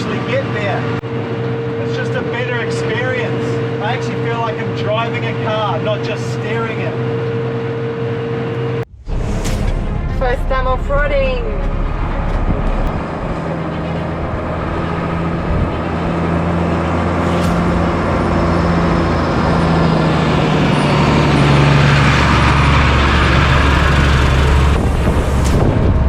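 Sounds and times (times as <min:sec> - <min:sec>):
truck diesel engine droning: 0:00.0 - 0:26.0.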